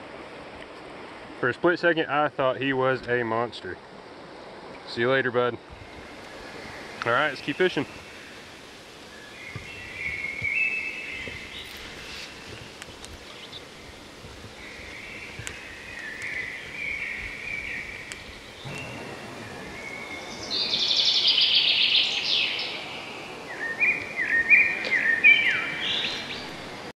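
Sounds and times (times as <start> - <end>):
outdoor background hiss: 0.0 - 26.9
songbirds singing: 5.8 - 26.9
loud fast bird trill: 14.6 - 26.6.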